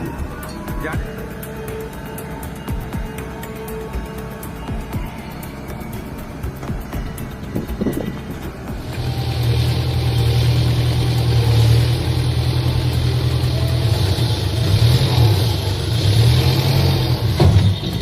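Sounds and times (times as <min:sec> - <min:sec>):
heavy vehicle engine running: 0:00.0 - 0:18.0.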